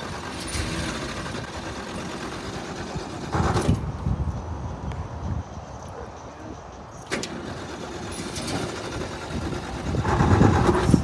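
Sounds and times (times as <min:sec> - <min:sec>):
car engine starting and running: 0:00.0 - 0:04.2, 0:07.0 - 0:11.0.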